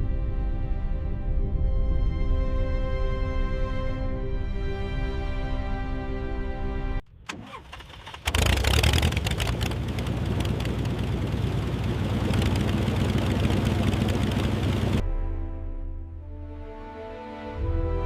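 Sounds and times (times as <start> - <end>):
radial piston engine starting: 7.1 - 15.0.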